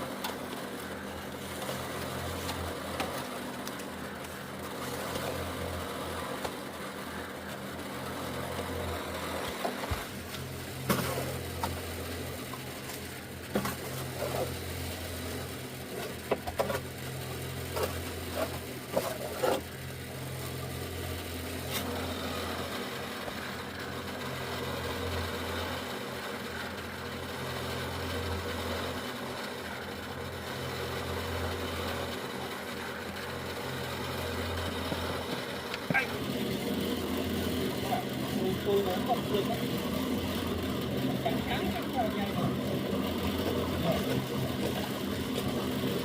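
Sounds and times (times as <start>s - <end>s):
engine humming: 0.0s - 46.0s.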